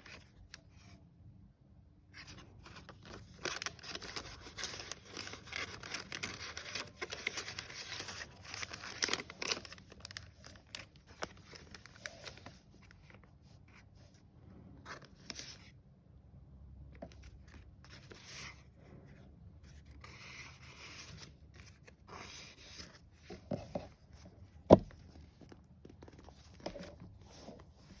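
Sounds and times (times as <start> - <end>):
paper pages rustling: 2.2 - 13.8, 19.6 - 28.0.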